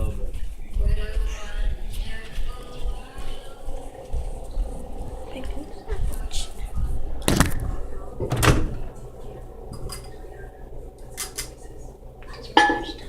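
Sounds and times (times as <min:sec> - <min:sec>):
microwave door opening and shutting: 0:07.2 - 0:09.0.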